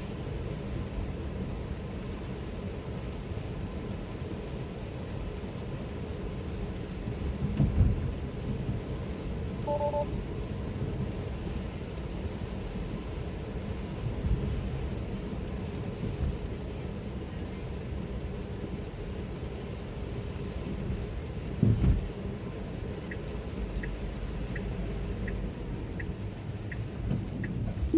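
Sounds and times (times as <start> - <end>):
road and tyre rumble: 0.0 - 27.9
two-tone alert chime: 9.7 - 10.1.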